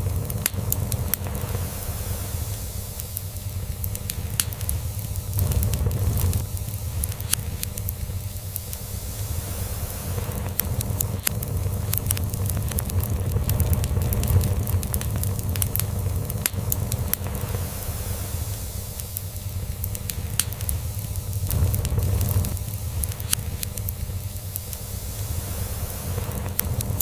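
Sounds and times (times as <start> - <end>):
log fire crackling and popping: 0.0 - 27.0
low purring rumble: 3.9 - 8.2, 8.8 - 18.1, 19.9 - 23.9.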